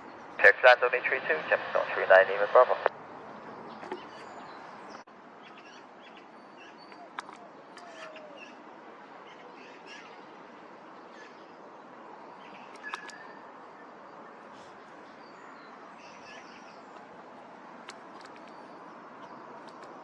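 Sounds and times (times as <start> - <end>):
birds chirping: 0.0 - 20.0
steady outdoor hiss: 0.0 - 20.0
sharp clicks: 12.7 - 13.3, 17.8 - 18.6, 19.2 - 20.0.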